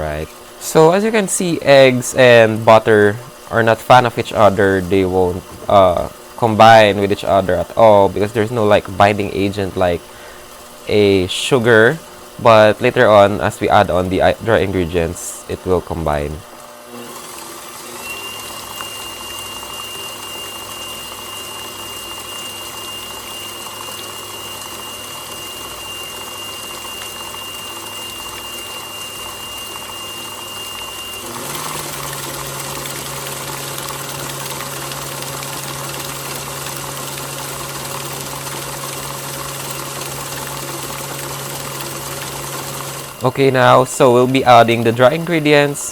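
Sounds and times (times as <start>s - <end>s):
stand mixer motor running: 0.0s - 45.9s
thin high whine: 17.9s - 34.4s, 42.6s - 45.9s.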